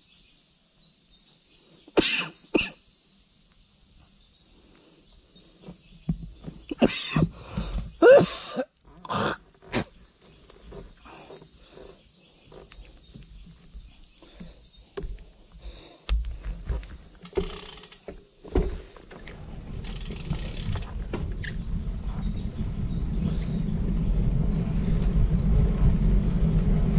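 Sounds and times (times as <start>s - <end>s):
high-pitched insect drone: 0.0s - 26.8s.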